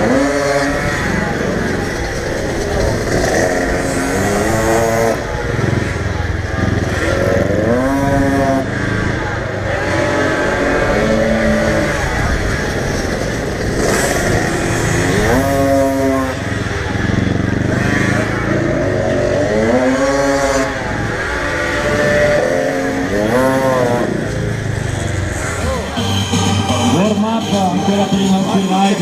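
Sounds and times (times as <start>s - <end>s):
motorcycle engines revving: 0.0s - 29.0s
background din: 21.7s - 29.0s.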